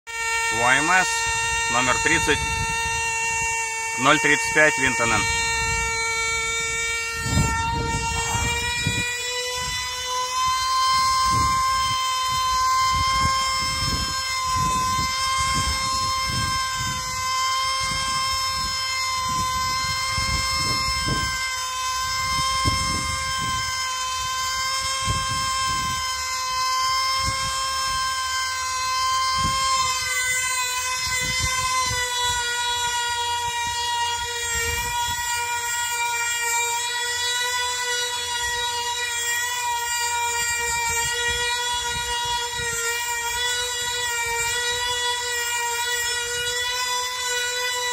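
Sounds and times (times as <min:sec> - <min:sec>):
high-pitched model engine scream: 0:00.1 - 0:47.9
wind buffeting microphone: 0:01.1 - 0:03.6, 0:04.9 - 0:26.3, 0:29.1 - 0:35.6, 0:40.5 - 0:44.9.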